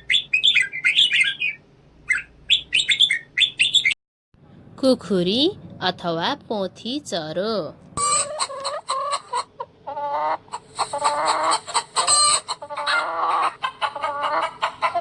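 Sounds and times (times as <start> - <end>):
hen clucking: 8.0 - 15.0.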